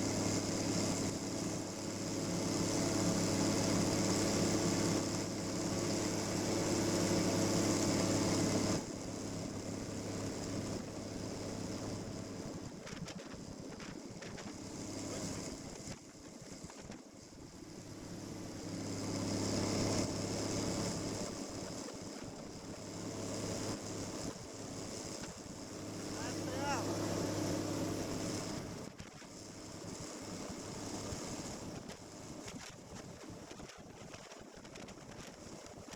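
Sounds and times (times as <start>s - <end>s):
snowmobile engine running: 18.0s - 28.8s.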